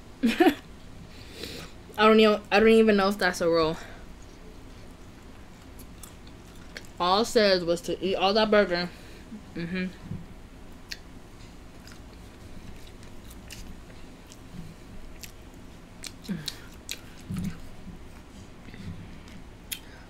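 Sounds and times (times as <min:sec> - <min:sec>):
chewing with wet mouth smacks: 0:05.6 - 0:07.0, 0:11.7 - 0:19.9.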